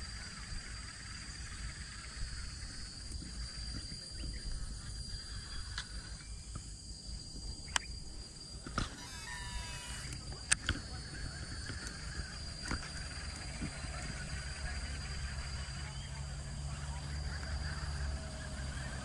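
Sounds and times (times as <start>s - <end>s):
high-pitched insect drone: 0.0s - 19.0s
sharp clicks: 7.7s - 7.9s, 8.6s - 10.9s.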